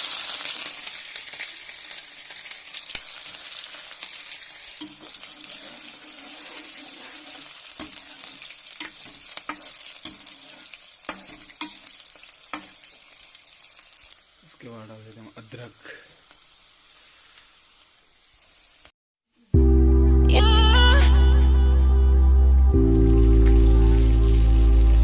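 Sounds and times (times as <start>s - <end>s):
onion sizzling in hot oil: 0.0s - 18.9s, 22.9s - 25.0s
spoon clicking against pan: 4.8s - 5.1s, 8.8s - 10.4s, 11.1s - 11.9s, 12.5s - 12.8s.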